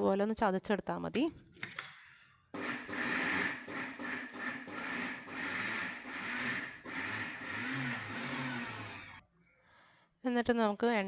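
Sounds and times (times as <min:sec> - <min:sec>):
mixer grinder motor whine: 0:02.6 - 0:09.2.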